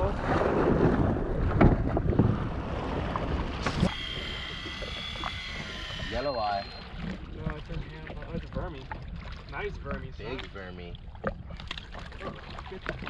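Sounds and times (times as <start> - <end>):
wind buffeting microphone: 0.0 - 3.9
water splashing: 0.0 - 13.0
electric fishing reel whining: 3.6 - 7.1.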